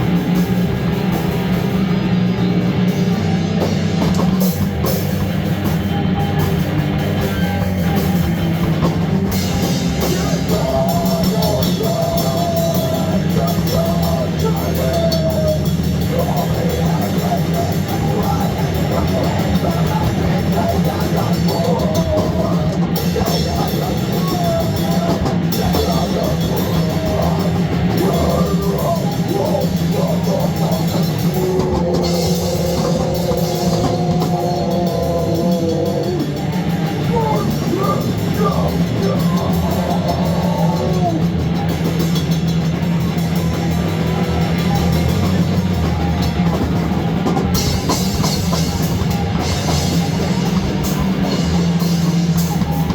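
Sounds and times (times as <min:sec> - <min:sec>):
loud rock music: 0:00.0 - 0:52.9.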